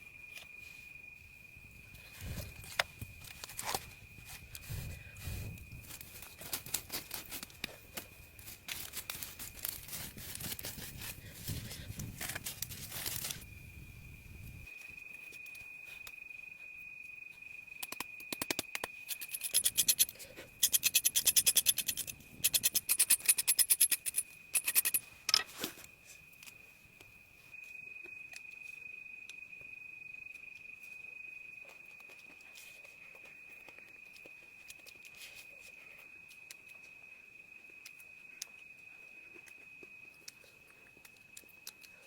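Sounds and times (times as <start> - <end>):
high-pitched insect trill: 0.0 - 42.0
fast rasping strokes: 19.1 - 25.0.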